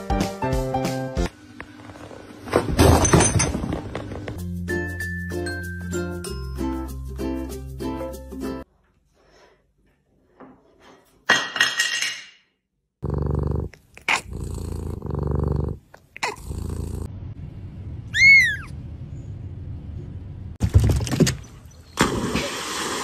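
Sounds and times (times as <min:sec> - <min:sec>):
animal growling: 0:13.0 - 0:17.1
high rising and falling call: 0:18.1 - 0:18.7.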